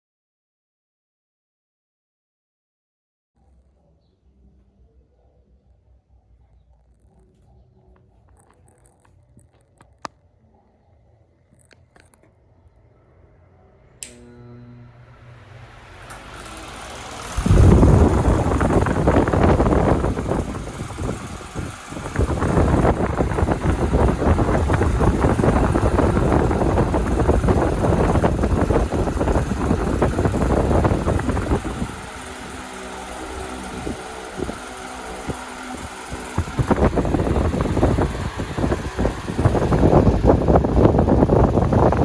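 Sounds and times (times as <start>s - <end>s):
fan motor hum: 11.2s - 42.0s
fan airflow rushing on microphone: 14.0s - 42.0s.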